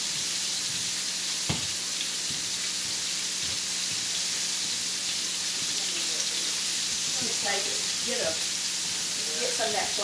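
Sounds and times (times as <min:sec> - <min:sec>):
steak sizzling in a pan: 0:00.0 - 0:10.0
knock: 0:01.5 - 0:02.4.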